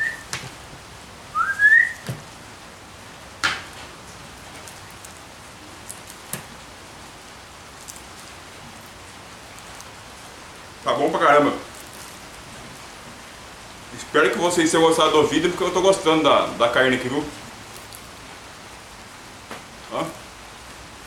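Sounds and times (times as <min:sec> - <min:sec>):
short high rising whistle: 0:00.0 - 0:00.3, 0:01.3 - 0:02.0
steady low hiss: 0:00.0 - 0:21.0.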